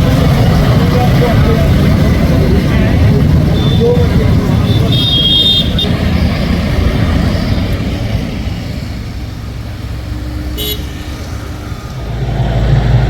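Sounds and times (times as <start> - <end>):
vehicle rumble: 0.0 - 13.0
short horn toot: 10.5 - 11.3.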